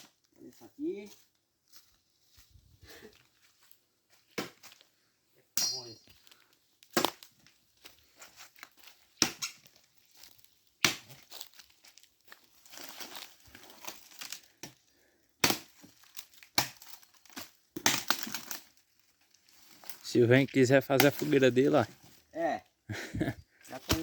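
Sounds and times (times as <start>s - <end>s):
dry wood snapping: 5.6s - 7.5s, 8.6s - 11.7s, 12.3s - 14.8s, 15.4s - 18.8s, 23.8s - 24.0s
brush rustling: 23.6s - 24.0s.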